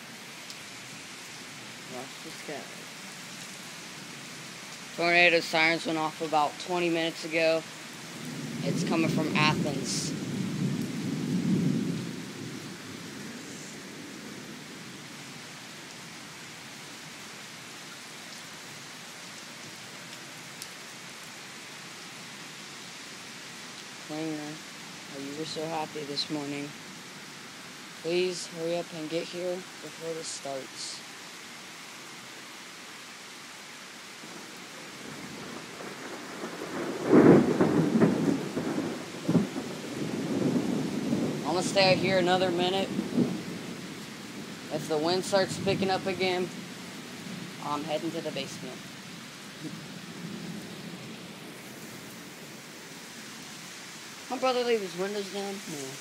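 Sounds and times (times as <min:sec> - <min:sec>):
heavy rain falling: 0:00.0 - 0:56.0
thunder rumbling: 0:05.0 - 0:15.1, 0:34.2 - 0:48.8
thunder crack: 0:35.4 - 0:43.4.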